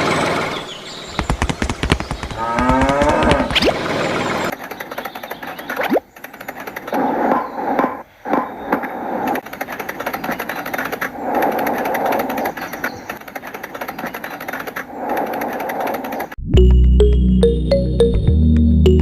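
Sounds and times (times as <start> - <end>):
small motor chattering: 0.0 - 7.0, 9.4 - 16.4.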